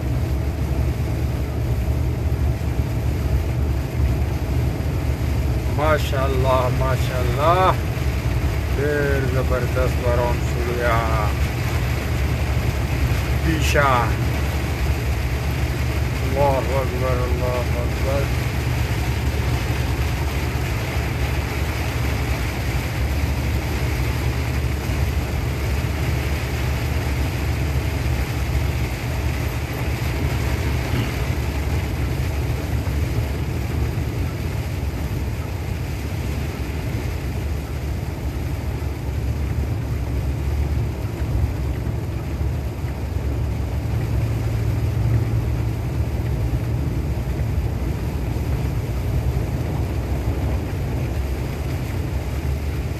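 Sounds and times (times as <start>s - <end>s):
heavy rain pouring: 0.0s - 52.9s
steady low rumble: 0.0s - 52.9s.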